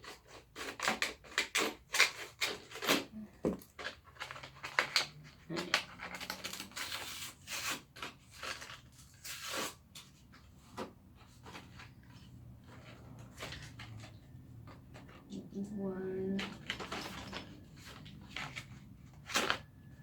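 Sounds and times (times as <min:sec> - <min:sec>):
scissors cutting packaging: 0:00.0 - 0:10.2
packaging crinkling and tearing: 0:03.7 - 0:09.8.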